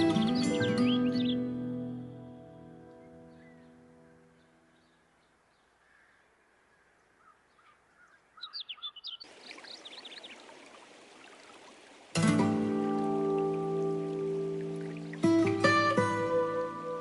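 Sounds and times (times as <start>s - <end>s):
birds chirping: 0.0s - 1.6s, 2.8s - 12.0s
music track: 12.2s - 17.0s.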